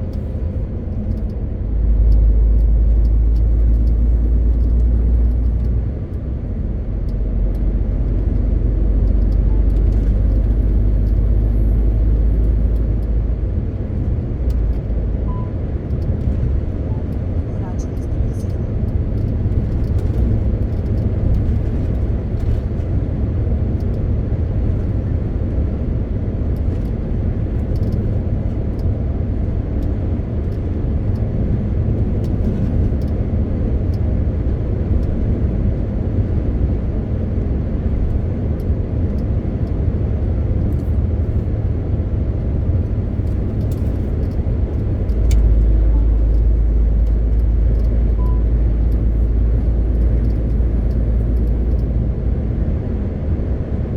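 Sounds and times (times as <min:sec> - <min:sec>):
deep steady hum: 0:00.0 - 0:22.2, 0:39.7 - 0:53.9
road noise: 0:00.0 - 0:53.9
truck diesel engine rumble: 0:00.0 - 0:53.9.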